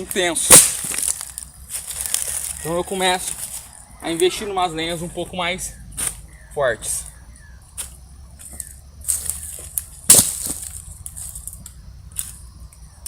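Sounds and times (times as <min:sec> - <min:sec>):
campfire crackling: 0:00.0 - 0:04.3.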